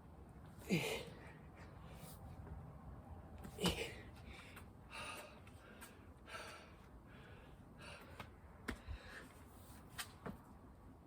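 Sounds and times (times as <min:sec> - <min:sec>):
person breathing hard: 0:03.6 - 0:09.5.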